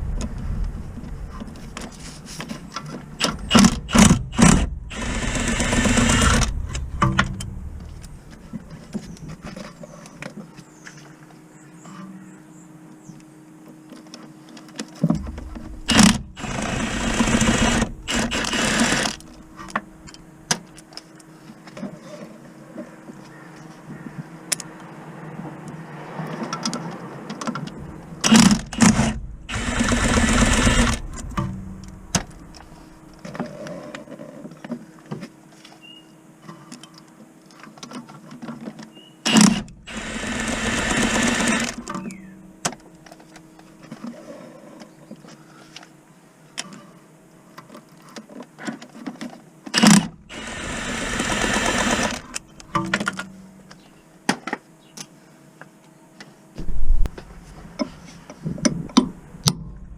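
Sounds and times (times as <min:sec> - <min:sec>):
cordless power tool running: 0:03.2 - 0:07.0, 0:15.6 - 0:19.4, 0:28.2 - 0:31.6, 0:39.3 - 0:42.1, 0:49.8 - 0:52.4.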